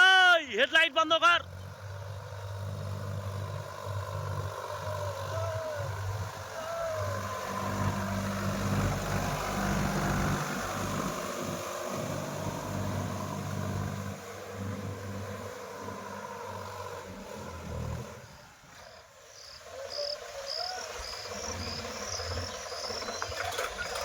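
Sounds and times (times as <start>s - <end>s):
tractor diesel engine running: 0.0s - 24.0s
insect chirping: 15.6s - 24.0s.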